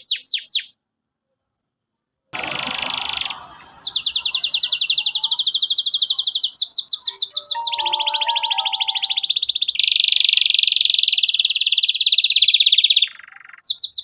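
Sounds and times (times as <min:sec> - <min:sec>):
canary singing: 0:03.8 - 0:09.5.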